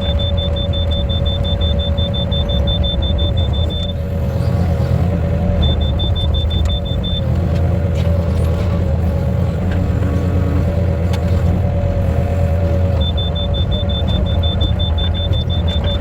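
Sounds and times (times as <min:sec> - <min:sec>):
rapid high-pitched beeping: 0:00.0 - 0:04.4, 0:05.2 - 0:07.4, 0:12.0 - 0:16.0
engine rumbling: 0:00.0 - 0:16.0.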